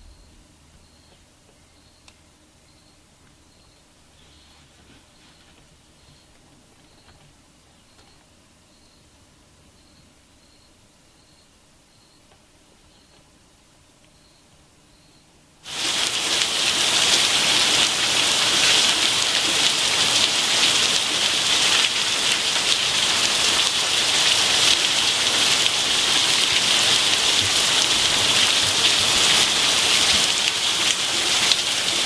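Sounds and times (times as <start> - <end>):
heavy rain falling: 15.6 - 32.0.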